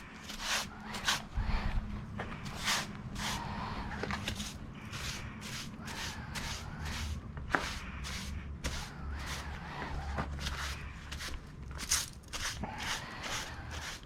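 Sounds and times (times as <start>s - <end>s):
broom sweeping a floor: 0.2s - 1.3s, 2.4s - 14.0s.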